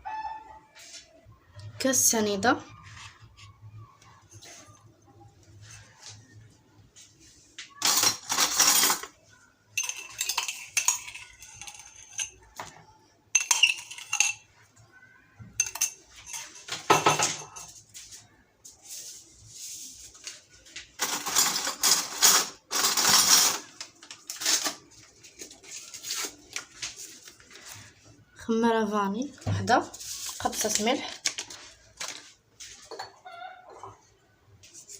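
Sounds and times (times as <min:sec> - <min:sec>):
utensils and dishes clattering: 0:07.7 - 0:14.8, 0:15.4 - 0:18.0, 0:20.9 - 0:27.7, 0:29.6 - 0:34.1.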